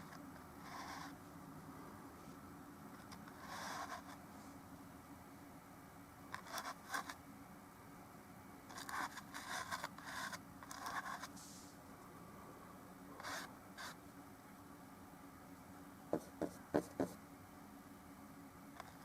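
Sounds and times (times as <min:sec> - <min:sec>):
paintbrush scratching on canvas: 0:00.6 - 0:01.2, 0:03.2 - 0:04.2.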